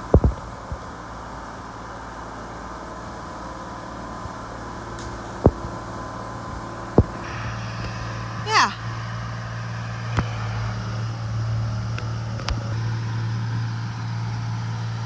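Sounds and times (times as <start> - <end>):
excavator sharp knocks: 7.0 - 13.0
diesel engine running: 7.0 - 15.0.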